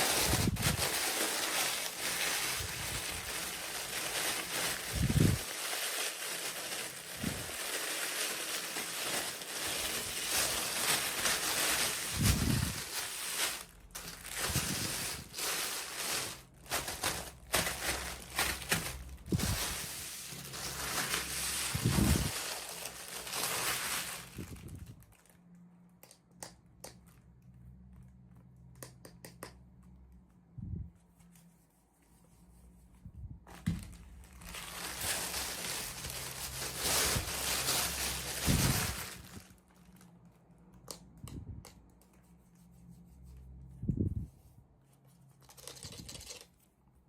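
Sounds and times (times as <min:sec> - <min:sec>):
packaging crinkling: 0:00.0 - 0:25.4, 0:33.5 - 0:40.2.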